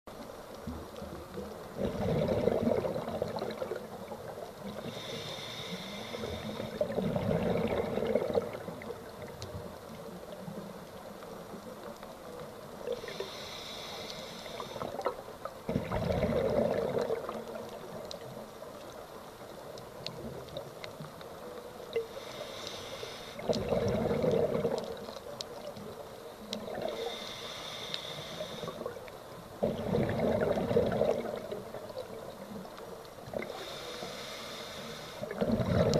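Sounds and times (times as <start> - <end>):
exhaled bubbles rumbling: 0.8 - 4.8, 6.5 - 9.5, 14.8 - 18.1, 23.4 - 25.8, 29.6 - 33.5, 35.2 - 35.9
regulator hissing inhale: 4.6 - 7.0, 12.9 - 15.0, 22.0 - 23.6, 26.7 - 29.0, 33.4 - 35.4.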